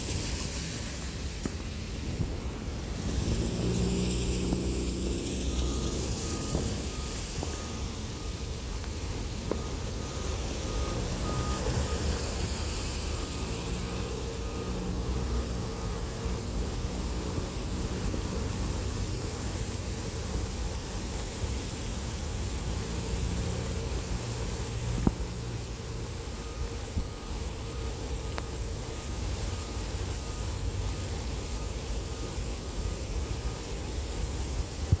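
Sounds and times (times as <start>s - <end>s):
passing vehicles rumble: 0.0s - 35.0s
short electronic beeps: 4.8s - 13.8s.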